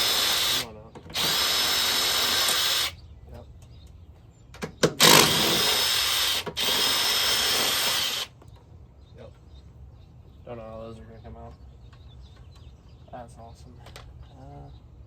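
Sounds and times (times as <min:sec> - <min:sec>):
power tool spinning: 0:00.0 - 0:03.0, 0:05.0 - 0:08.3.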